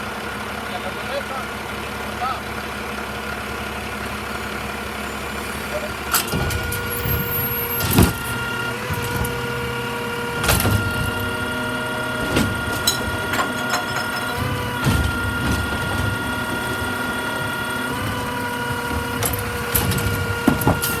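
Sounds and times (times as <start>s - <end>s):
truck engine rumble: 0.0s - 21.0s
metal clanks and bangs: 12.1s - 21.0s.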